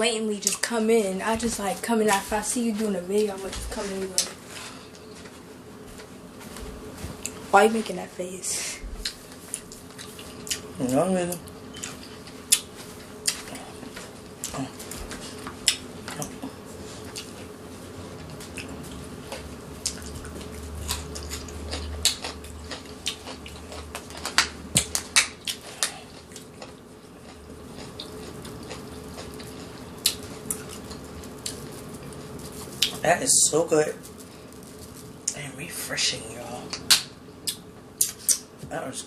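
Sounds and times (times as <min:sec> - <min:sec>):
steady low hum: 0:00.0 - 0:39.0
wet chewing: 0:11.7 - 0:17.5, 0:18.1 - 0:33.0.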